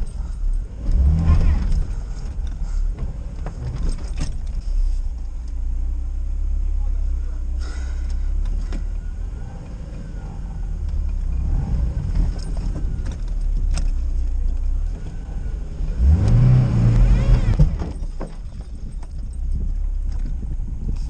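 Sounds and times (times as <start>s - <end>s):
car engine under load: 0.0s - 21.0s
engine revving hard: 0.8s - 1.9s, 15.8s - 17.8s.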